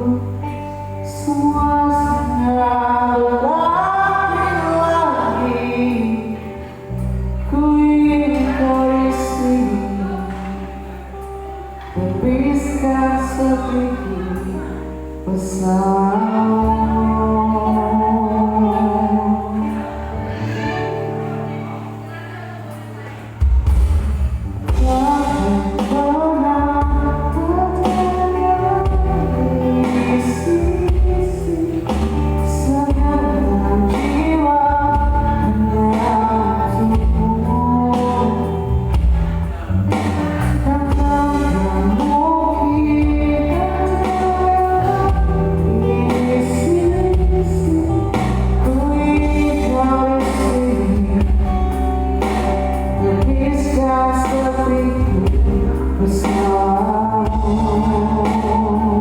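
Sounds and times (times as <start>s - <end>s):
live band playing pop song: 0.0s - 59.0s.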